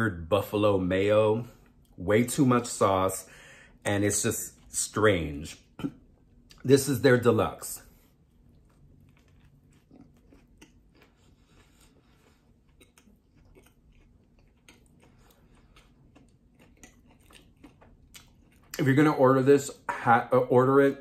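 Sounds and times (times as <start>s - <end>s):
chewing crispy food: 4.0s - 20.0s.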